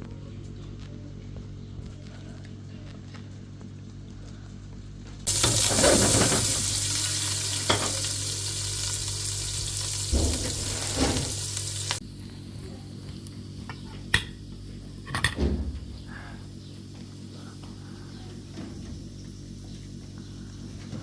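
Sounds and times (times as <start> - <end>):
food sizzling in hot oil: 5.3 - 12.0.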